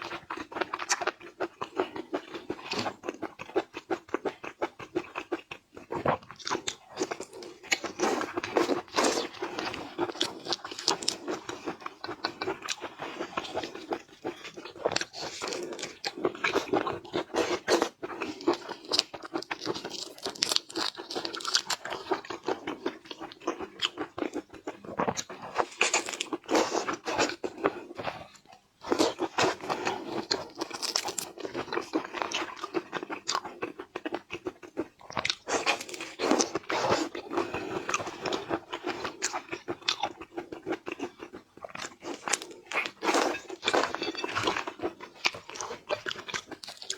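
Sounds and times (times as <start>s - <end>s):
crunching and wet chewing: 0.0s - 46.9s.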